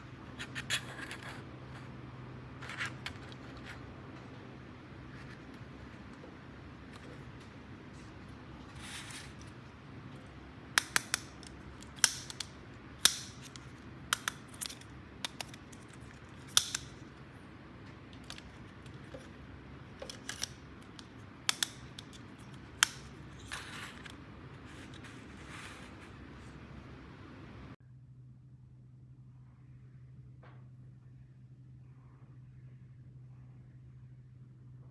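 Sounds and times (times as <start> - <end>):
plastic toy parts clicking: 10.8 - 17.0, 18.2 - 19.3, 20.0 - 24.1.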